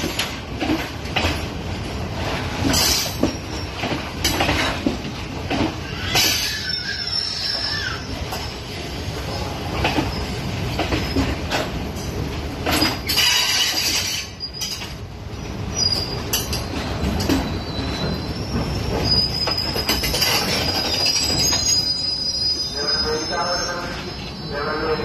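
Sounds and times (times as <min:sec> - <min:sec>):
train rumbling over rails: 0:00.0 - 0:25.0
high wheel squeal: 0:05.8 - 0:08.6, 0:17.3 - 0:25.0.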